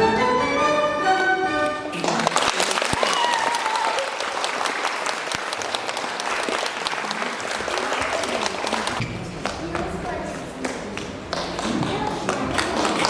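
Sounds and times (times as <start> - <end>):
music: 0.0 - 2.1
audience applauding: 1.9 - 9.0, 12.5 - 13.0.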